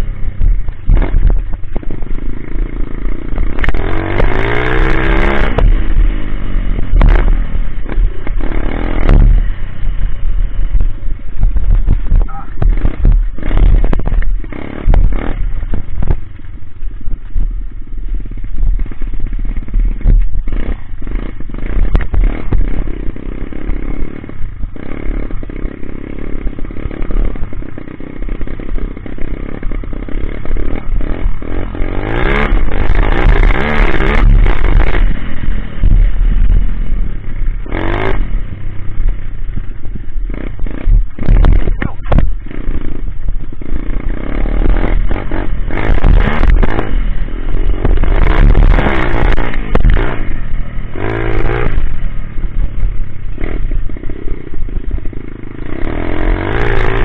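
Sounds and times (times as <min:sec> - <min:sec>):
pit bike engine revving: 0:00.0 - 0:57.0.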